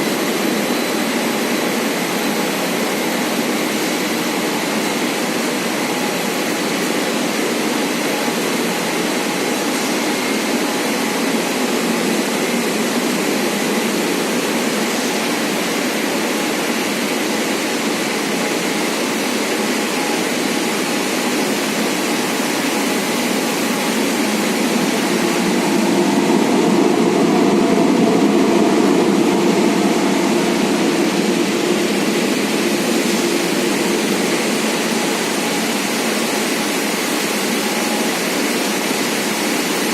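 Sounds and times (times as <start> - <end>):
production line machinery: 0.0 - 39.9.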